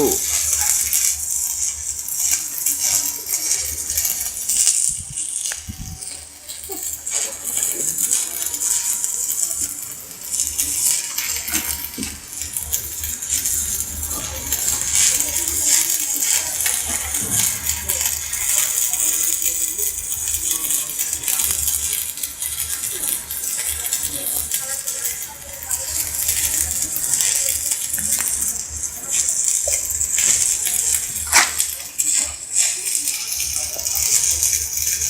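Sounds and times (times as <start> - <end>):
welding arc crackling and hissing: 0.0 - 35.0.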